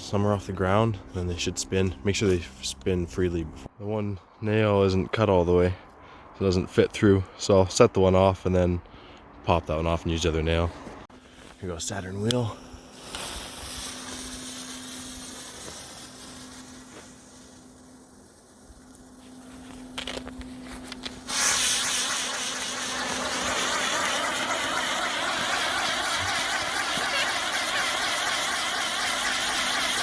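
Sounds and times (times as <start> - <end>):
firework fuse fizzing: 11.2 - 30.0
spinning firework hissing sparks: 11.2 - 30.0.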